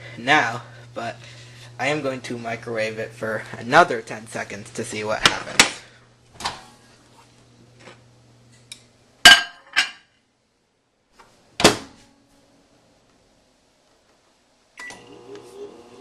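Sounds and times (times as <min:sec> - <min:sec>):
faint hum: 0:00.0 - 0:09.2.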